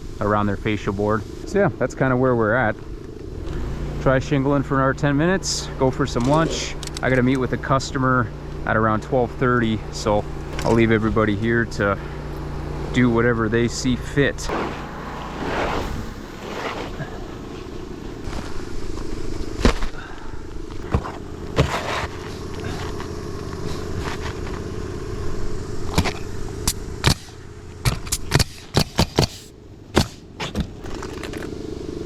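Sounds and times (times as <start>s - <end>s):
steady low rumble: 0.0s - 32.0s
nail gun shots: 14.5s - 15.0s, 26.0s - 31.0s.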